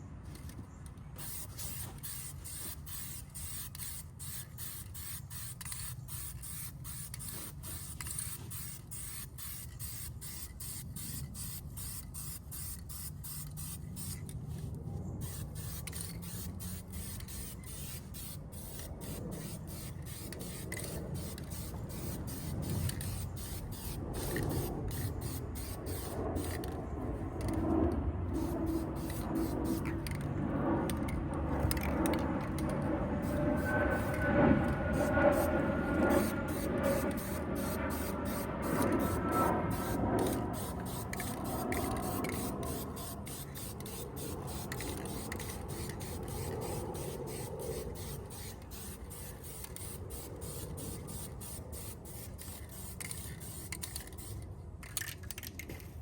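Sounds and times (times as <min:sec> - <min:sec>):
aerosol spray can hissing: 0:01.2 - 0:14.2, 0:15.2 - 0:26.6, 0:28.4 - 0:29.9, 0:36.1 - 0:54.4.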